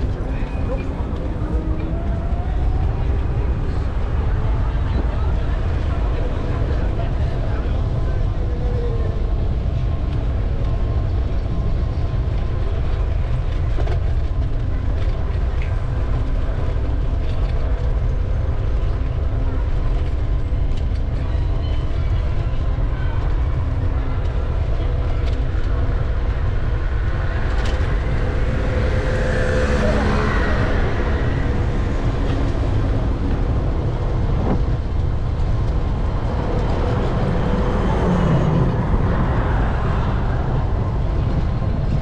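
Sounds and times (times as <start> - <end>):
traffic rumble: 0.0 - 42.0
voices of passers-by: 0.0 - 42.0
vehicle passing: 24.9 - 42.0.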